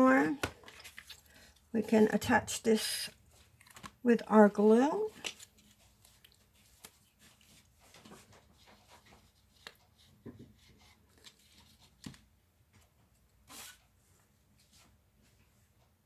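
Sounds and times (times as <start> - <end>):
cardstock rustling: 2.9 - 4.0.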